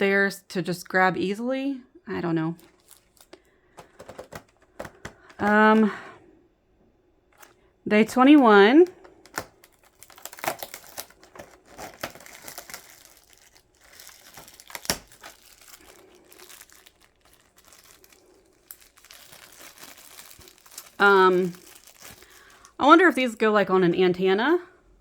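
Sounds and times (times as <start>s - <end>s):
packaging crinkling and tearing: 2.6s - 5.8s, 8.2s - 22.8s
packaging rustling: 2.6s - 5.9s, 7.4s - 22.8s.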